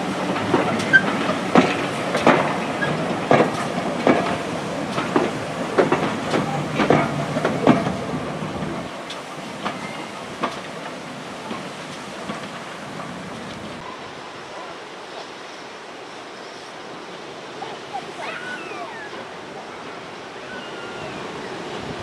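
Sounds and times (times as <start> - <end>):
train wheels clicking over rail joints: 0.0 - 13.8
train rumble: 0.0 - 22.0.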